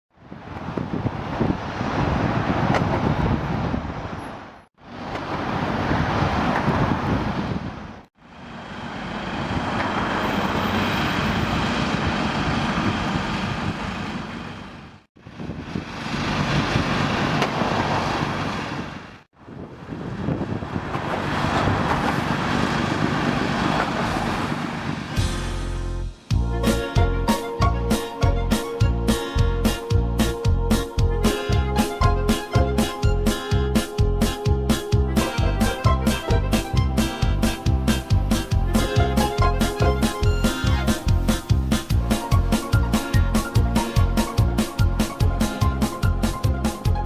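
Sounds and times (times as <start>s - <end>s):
road traffic rumble: 0.1s - 47.0s
wind on microphone: 0.2s - 4.6s, 5.4s - 8.1s, 15.2s - 25.3s.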